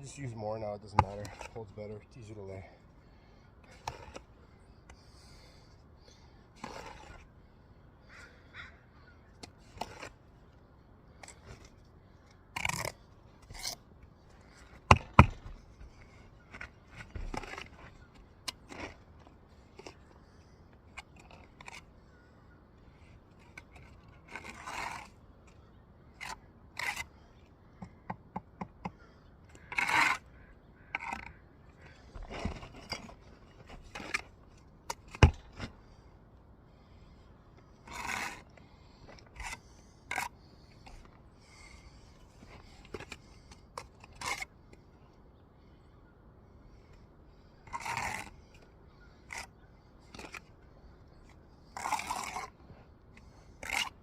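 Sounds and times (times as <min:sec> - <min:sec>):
trowel scraping mortar: 0:00.9 - 0:01.7, 0:03.7 - 0:04.2, 0:06.6 - 0:07.2, 0:09.6 - 0:10.2, 0:12.6 - 0:13.8, 0:23.4 - 0:25.2, 0:26.2 - 0:27.2, 0:28.8 - 0:30.3, 0:30.9 - 0:35.7, 0:37.8 - 0:41.1, 0:41.7 - 0:44.5, 0:47.6 - 0:52.6, 0:53.2 - 0:54.0.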